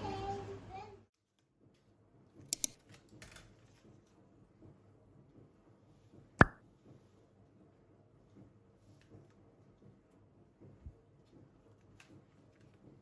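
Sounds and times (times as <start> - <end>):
light sharp clicks: 2.5 - 2.8.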